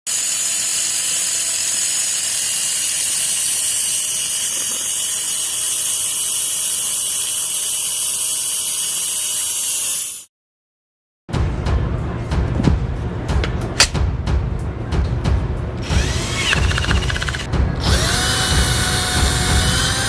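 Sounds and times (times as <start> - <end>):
electric drill running: 0.1 - 10.2, 15.8 - 20.0.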